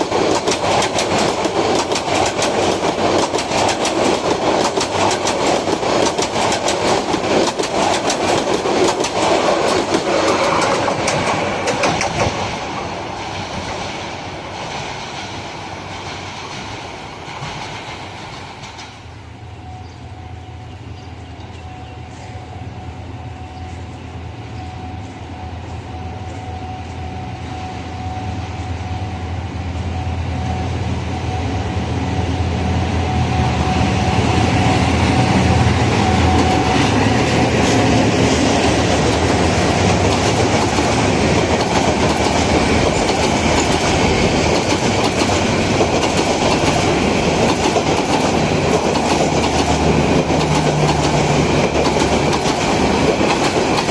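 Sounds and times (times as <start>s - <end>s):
train wheels clattering over rail joints: 0.0s - 19.2s, 34.6s - 53.9s
approaching train rumble and whine: 0.0s - 53.9s.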